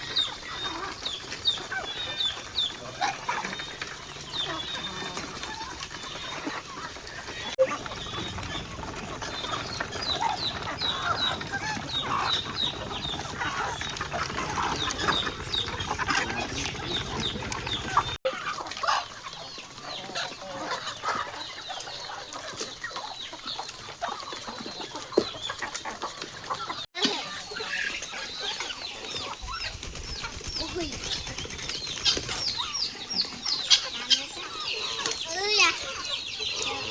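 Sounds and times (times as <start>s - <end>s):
chickens clucking: 0.0s - 36.9s.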